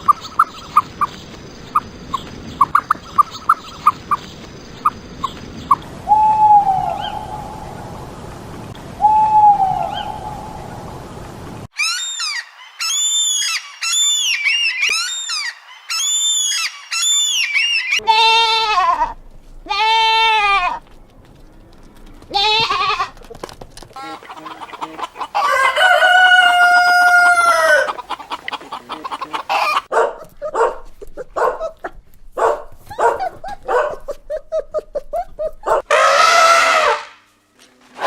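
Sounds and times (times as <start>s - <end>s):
hens clucking: 0.0s - 5.9s, 22.3s - 32.1s
rooster crowing: 25.3s - 28.0s, 35.9s - 37.2s.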